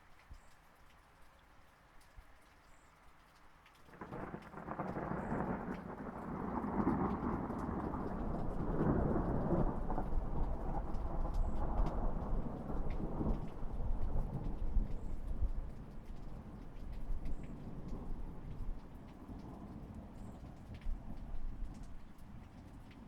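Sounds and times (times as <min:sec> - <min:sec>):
rain: 0:00.0 - 0:23.0
thunder rumbling: 0:04.0 - 0:23.0.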